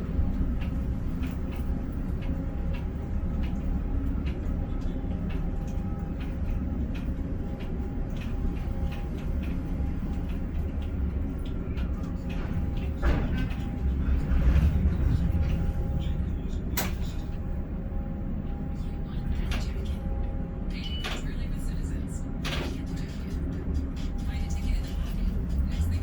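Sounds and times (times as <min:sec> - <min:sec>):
crane machinery droning: 0:00.0 - 0:26.0
light clicks and ticks: 0:00.3 - 0:17.4.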